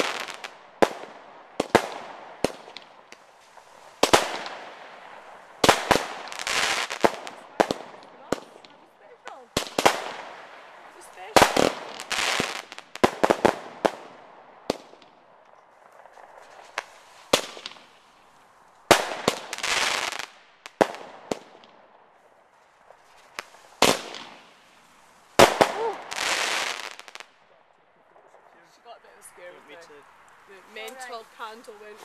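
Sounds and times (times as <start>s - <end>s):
fireworks bangs: 0.0s - 22.0s, 22.7s - 27.4s
fireworks crackling: 0.0s - 32.0s.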